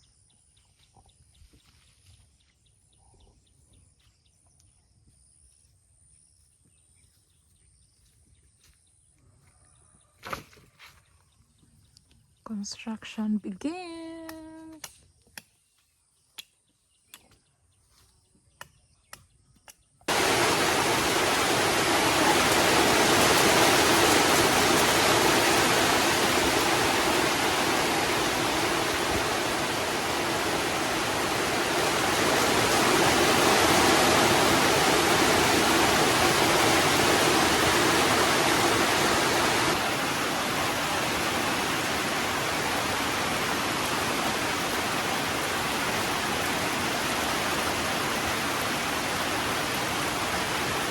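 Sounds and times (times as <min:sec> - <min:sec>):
heavy rain falling: 0:20.1 - 0:50.9.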